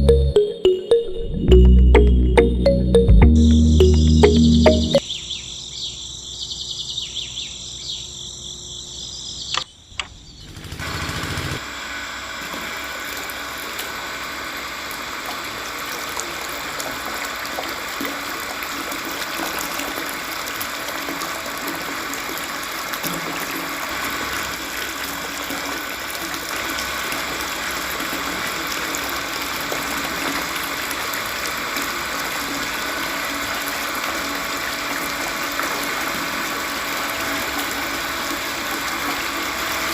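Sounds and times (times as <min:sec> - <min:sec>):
small water pump running: 0:10.6 - 0:39.9.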